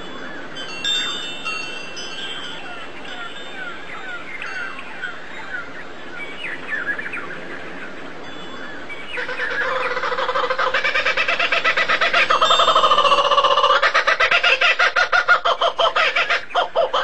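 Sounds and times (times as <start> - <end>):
small birds chirping: 0.4 - 17.0
rapidly pulsing bird call: 8.6 - 17.0.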